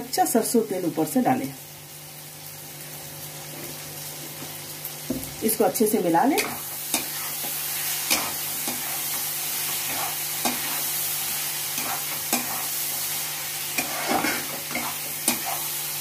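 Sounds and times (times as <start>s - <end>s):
food sizzling in oil: 0.0s - 16.0s
spatula scraping and knocking pan: 6.4s - 11.0s, 11.7s - 12.8s, 13.7s - 15.8s.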